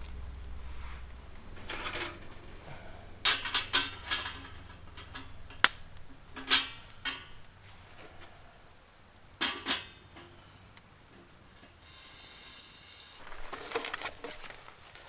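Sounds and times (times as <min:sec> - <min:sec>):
objects clicking and knocking: 0:13.2 - 0:15.0.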